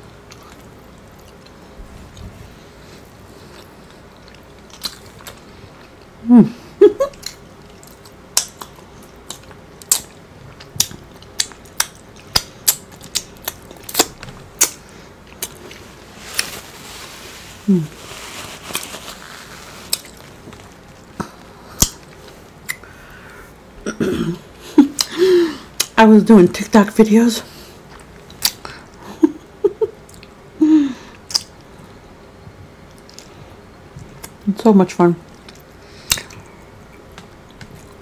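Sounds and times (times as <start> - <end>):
chewing: 0.2 - 6.1, 7.1 - 16.6, 18.6 - 23.0, 35.2 - 38.0
wet mouth clicks and lip smacks: 31.3 - 31.5, 35.4 - 36.4.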